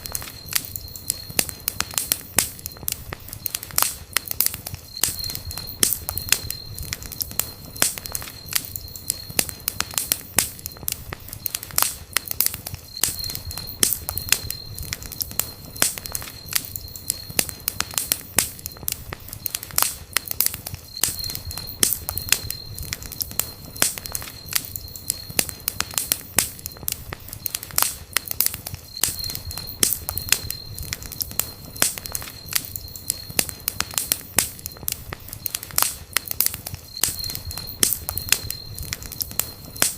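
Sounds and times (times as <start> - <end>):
faint high steady tone: 0.0 - 18.7
campfire crackling and popping: 0.0 - 39.9.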